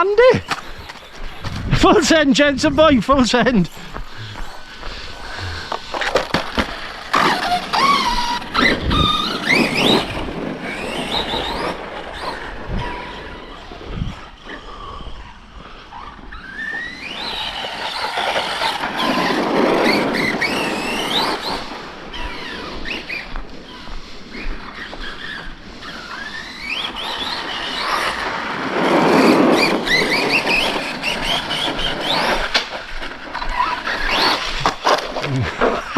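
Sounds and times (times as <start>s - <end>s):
electric motors whining: 0.0s - 23.9s, 29.5s - 35.9s
toy trucks hitting ground: 0.4s - 1.6s, 4.6s - 13.6s, 16.5s - 23.2s, 26.0s - 35.9s.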